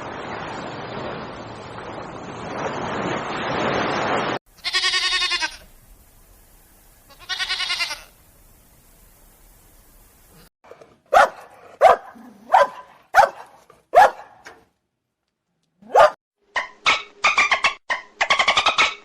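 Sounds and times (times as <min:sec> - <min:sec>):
goat bleating: 0:04.6 - 0:05.7, 0:07.1 - 0:08.2.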